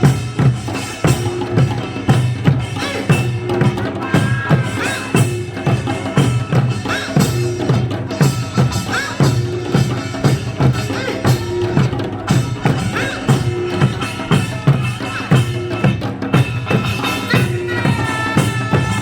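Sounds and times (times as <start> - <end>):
folk drums and percussion: 0.0 - 19.0.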